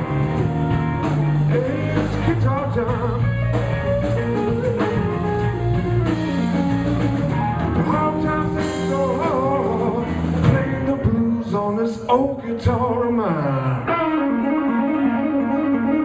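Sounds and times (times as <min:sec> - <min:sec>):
electric guitar bends: 0:00.0 - 0:11.6, 0:12.2 - 0:16.0
live blues band playing: 0:00.0 - 0:16.0.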